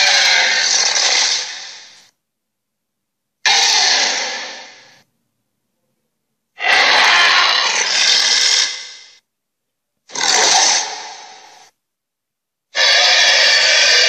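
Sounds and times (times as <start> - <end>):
harsh creature sound effects: 0.0 - 2.0, 3.4 - 5.0, 6.6 - 9.2, 10.1 - 11.7, 12.8 - 14.0.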